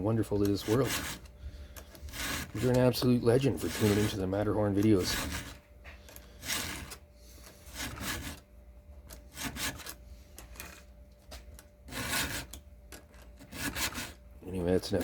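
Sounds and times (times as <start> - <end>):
file rasping on chainsaw chain: 0.3 - 1.3, 1.9 - 5.6, 6.4 - 7.0, 7.7 - 8.4, 9.3 - 10.0, 11.9 - 12.6, 13.4 - 14.2.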